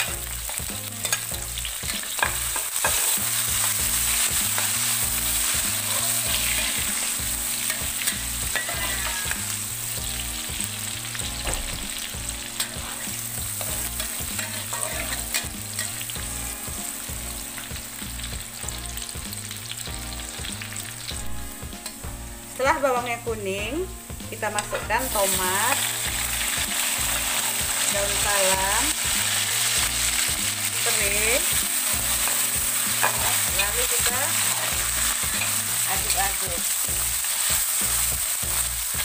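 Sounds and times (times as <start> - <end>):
shallots sizzling in oil: 0.0 - 39.0
spatula scraping a pan: 0.1 - 10.0, 11.4 - 16.2, 24.6 - 36.5.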